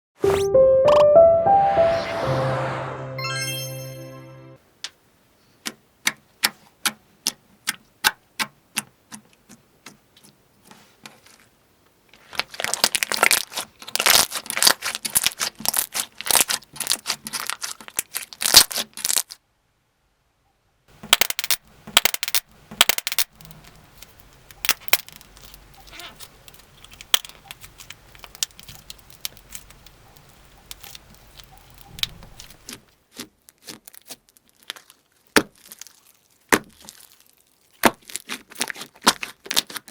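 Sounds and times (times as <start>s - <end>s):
slime clicking and crackling: 12.3s - 19.4s, 21.1s - 39.9s.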